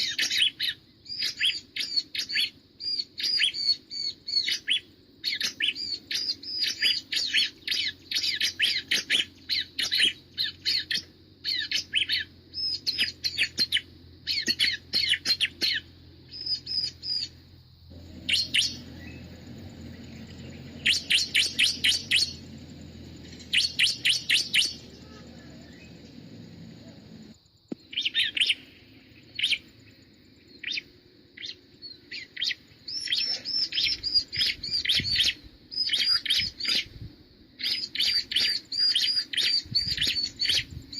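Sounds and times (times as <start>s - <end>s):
bird rapid high chirps: 0.0s - 29.7s, 30.5s - 36.9s, 37.6s - 40.9s
low steady rumble: 12.2s - 27.6s.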